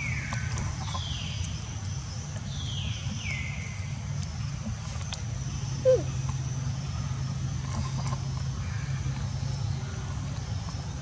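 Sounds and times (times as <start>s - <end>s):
steady low hum: 0.0s - 11.0s
bird calling: 5.5s - 6.4s.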